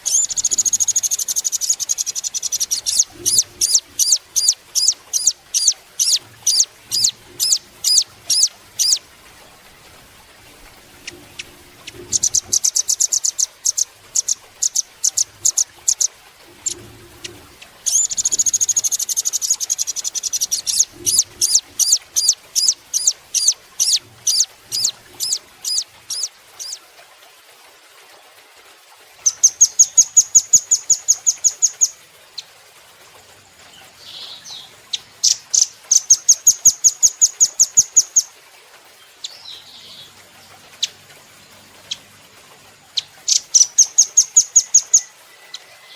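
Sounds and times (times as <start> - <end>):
bird singing chips and trills: 0.0 - 9.1, 11.0 - 16.8, 17.8 - 26.8, 29.2 - 32.5, 34.0 - 38.4, 42.9 - 45.9.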